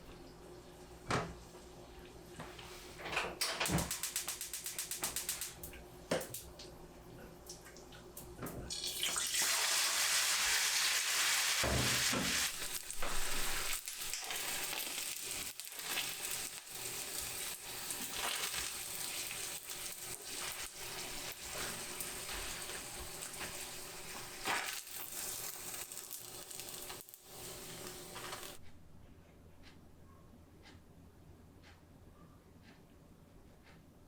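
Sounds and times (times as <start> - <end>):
food deep-frying in hot oil: 8.7 - 28.6.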